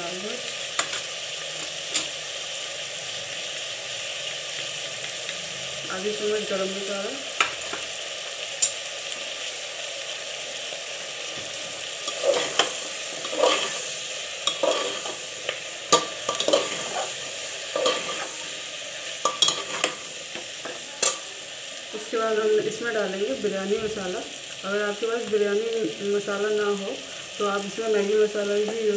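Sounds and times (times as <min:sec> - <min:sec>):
vegetables sizzling in hot oil: 0:00.0 - 0:28.9
metal spoon scraping a pot: 0:12.0 - 0:15.2, 0:16.0 - 0:18.4, 0:19.3 - 0:20.0.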